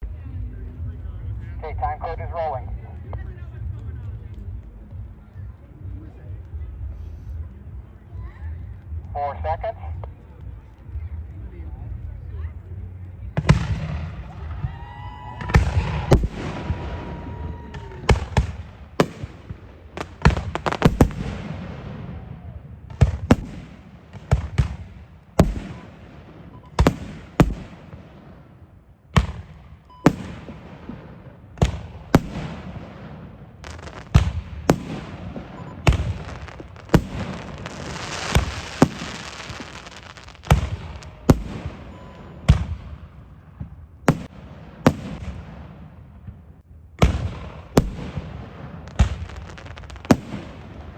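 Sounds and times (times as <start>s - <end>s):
fireworks bursting: 13.3s - 50.9s
fireworks hissing and crackling: 13.4s - 22.2s, 31.6s - 42.6s, 47.1s - 50.9s.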